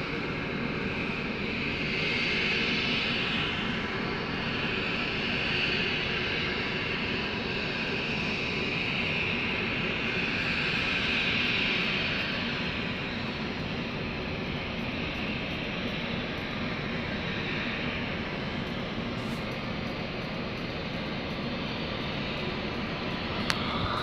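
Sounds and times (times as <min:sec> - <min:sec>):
jet-like roar with hissing: 0:21.6 - 0:24.0.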